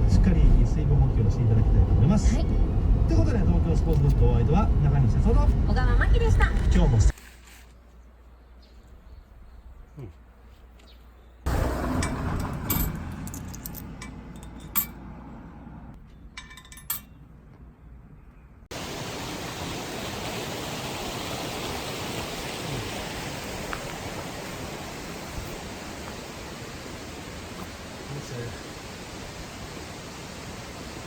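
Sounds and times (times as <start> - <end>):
metal cookware clinking: 16.3 - 17.2.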